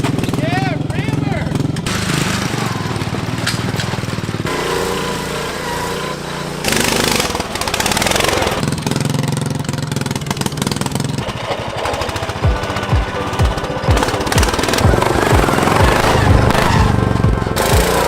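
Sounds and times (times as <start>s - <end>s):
lawn tractor engines running hard: 0.0s - 18.0s.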